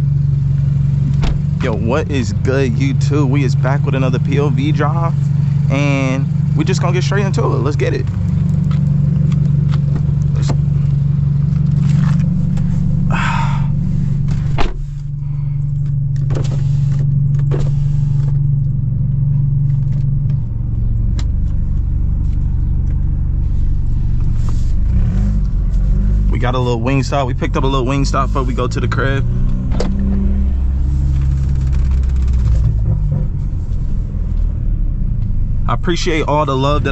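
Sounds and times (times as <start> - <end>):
car engine droning: 0.0 - 36.9.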